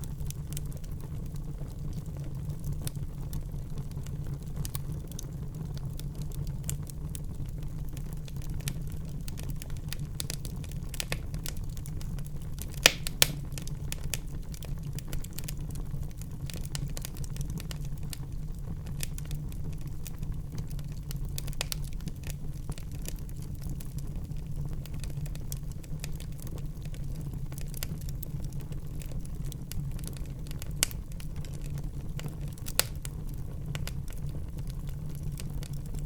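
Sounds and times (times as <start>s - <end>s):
wood fire crackling: 0.0s - 36.0s
sharp pops from fire: 7.9s - 18.2s, 18.9s - 23.9s, 24.8s - 36.0s.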